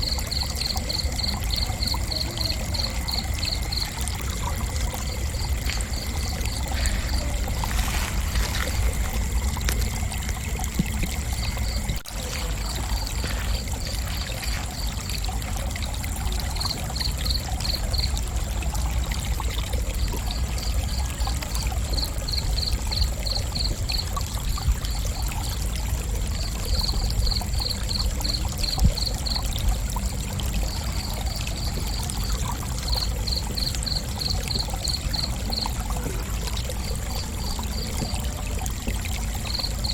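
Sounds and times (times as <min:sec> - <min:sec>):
continuous insect trill: 0:00.0 - 0:39.9
crickets chirping: 0:00.0 - 0:39.9
steady low rumble: 0:04.5 - 0:14.9.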